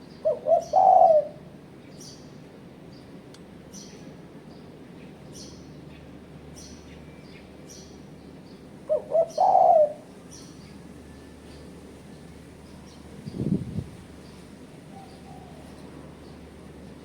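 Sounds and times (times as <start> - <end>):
dove cooing: 0.2 - 1.6, 8.9 - 10.2, 14.9 - 15.9.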